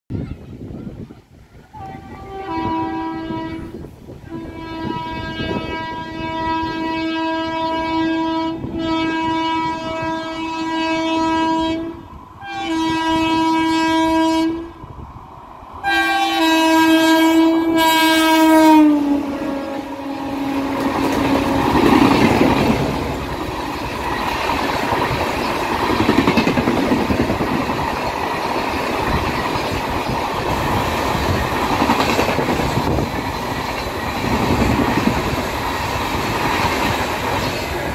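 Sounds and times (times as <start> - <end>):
train coaches rumbling and clacking: 0.1 - 37.9
locomotive horn blasts: 1.8 - 14.8, 15.8 - 23.2.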